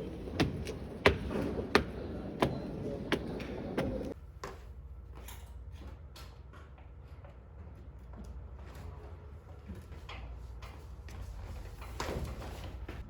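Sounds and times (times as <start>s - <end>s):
busy clatter: 0.0s - 4.2s.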